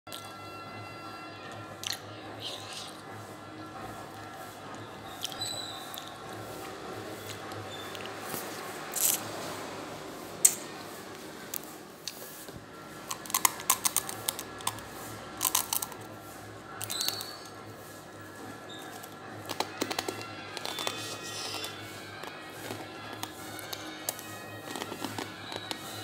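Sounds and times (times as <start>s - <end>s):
crunching dry noodles: 8.0s - 9.2s, 13.0s - 16.1s, 16.7s - 17.5s, 18.7s - 26.0s.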